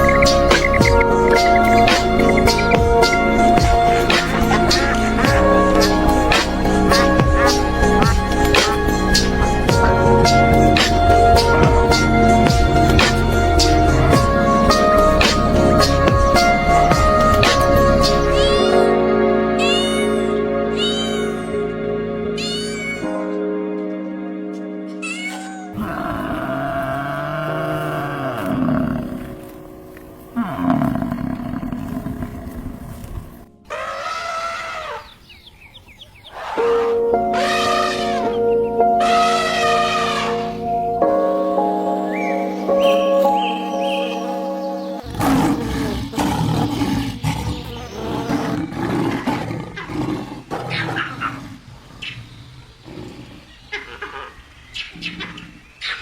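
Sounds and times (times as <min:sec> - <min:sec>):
animal calling roughly: 0:00.0 - 0:10.0, 0:14.3 - 0:19.0, 0:19.6 - 0:21.6, 0:25.0 - 0:29.7, 0:30.4 - 0:40.8
music: 0:00.0 - 0:33.8, 0:36.6 - 0:47.0.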